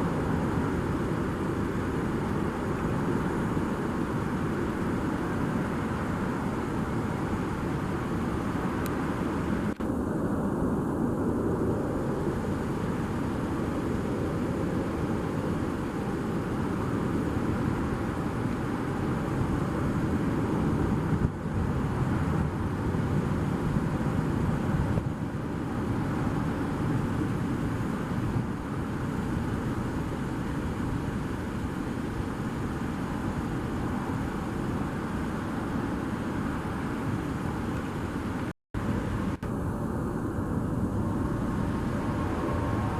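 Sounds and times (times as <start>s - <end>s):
jet engine rush and whine: 0.0s - 42.9s.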